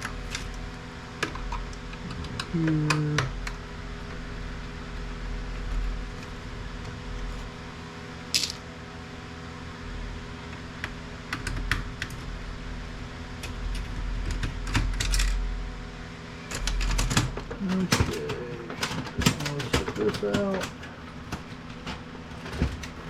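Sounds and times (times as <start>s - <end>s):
printer parts clicking and tapping: 16.6s - 23.0s.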